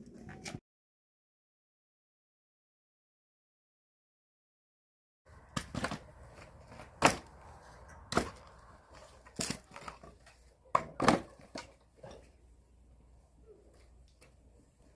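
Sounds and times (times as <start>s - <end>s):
firewood being chopped: 5.4s - 12.2s.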